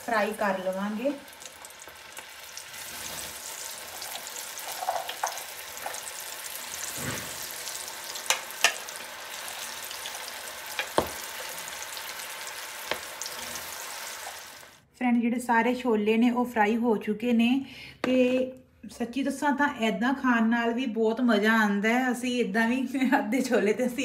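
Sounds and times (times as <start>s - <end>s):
deep-frying sizzle: 0.0s - 14.8s.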